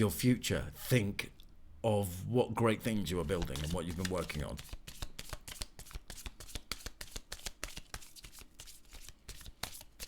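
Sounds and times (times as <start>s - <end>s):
cards being shuffled by hand: 3.2s - 10.0s.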